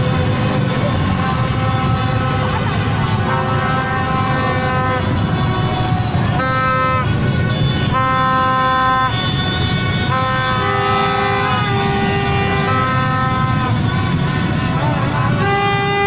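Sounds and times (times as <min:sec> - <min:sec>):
din of many engines: 0:00.0 - 0:16.0
vehicle horns honking: 0:00.0 - 0:16.0.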